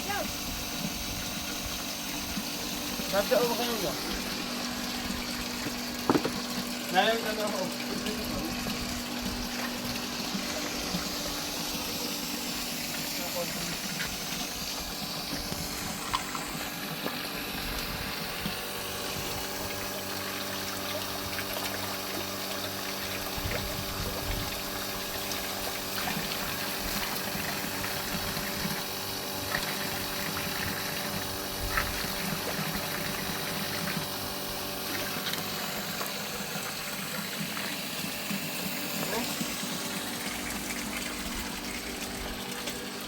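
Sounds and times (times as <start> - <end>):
constant low hum: 0.0 - 43.0
running water: 0.0 - 43.0
short knocks: 6.0 - 6.4.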